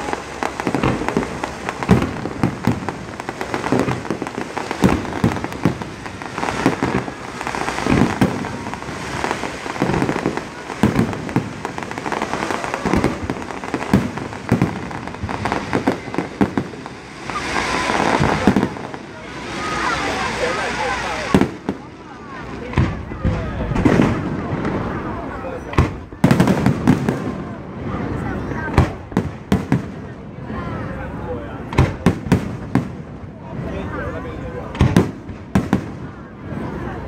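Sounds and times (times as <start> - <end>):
fireworks bangs: 0.0 - 37.0
fireworks crackling: 0.0 - 37.0.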